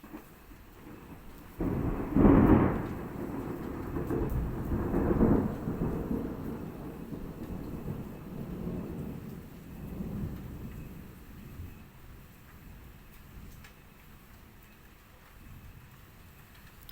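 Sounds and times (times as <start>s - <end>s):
thunder crack and rumble: 0.0s - 14.3s.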